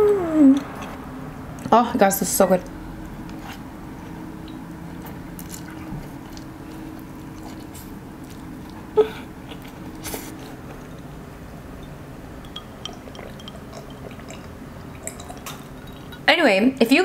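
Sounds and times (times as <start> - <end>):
person chewing: 3.1 - 11.2, 12.5 - 16.2.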